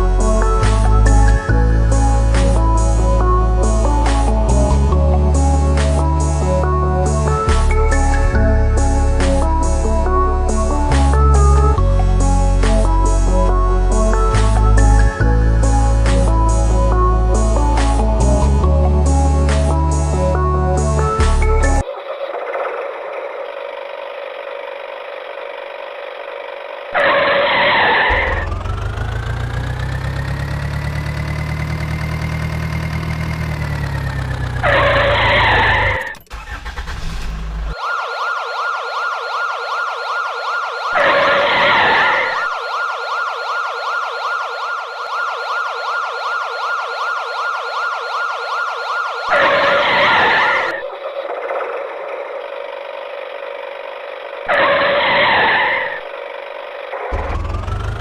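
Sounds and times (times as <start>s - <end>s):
cartoon engine sound: 27.0s - 37.2s, 57.1s - 58.0s.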